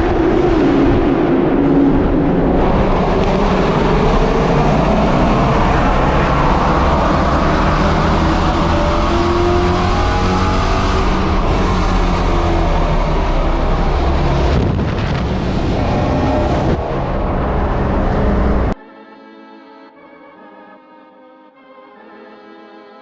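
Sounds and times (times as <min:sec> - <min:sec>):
car engines running loudly: 0:00.0 - 0:18.8
engine revving: 0:00.0 - 0:18.8.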